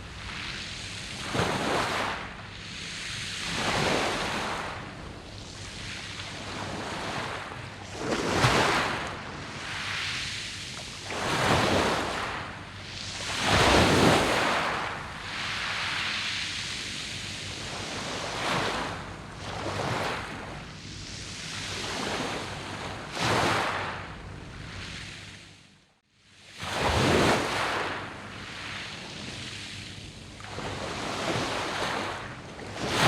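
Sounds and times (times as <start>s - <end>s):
waves washing over pebble beach: 1.1s - 2.3s, 3.4s - 4.9s, 5.6s - 10.2s, 10.9s - 16.6s.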